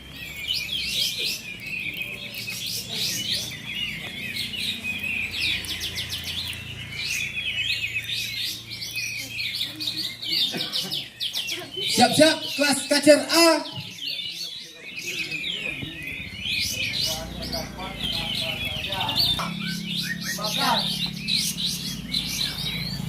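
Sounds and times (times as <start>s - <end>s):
songbirds singing in chorus: 0.0s - 23.0s.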